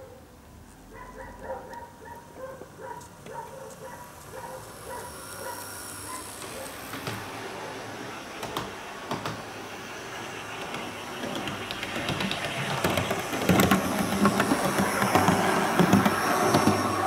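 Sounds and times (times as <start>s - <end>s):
wheels clicking on track: 2.6s - 17.0s
model train motor hum: 3.2s - 17.0s.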